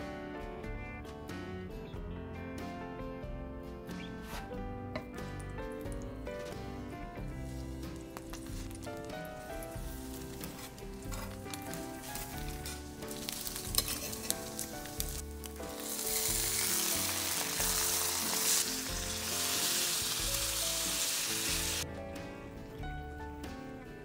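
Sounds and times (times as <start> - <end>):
bread sizzling in butter: 7.4 - 21.8
bacon sizzling on a griddle: 9.6 - 21.8.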